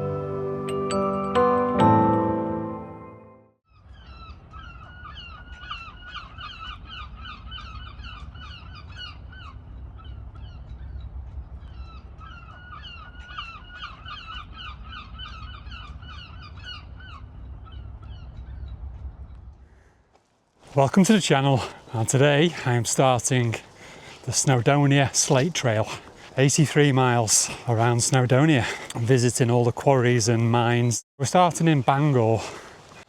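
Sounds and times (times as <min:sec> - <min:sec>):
low wind rumble: 0:03.9 - 0:20.1.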